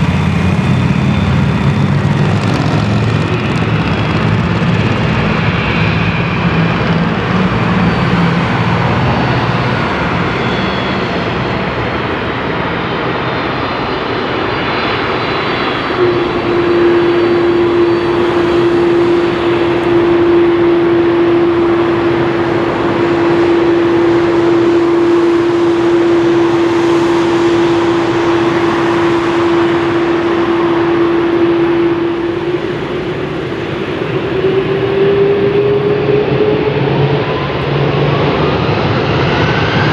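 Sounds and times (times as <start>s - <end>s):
jet engines running: 0.0s - 39.9s
steady engine whine: 0.0s - 39.9s.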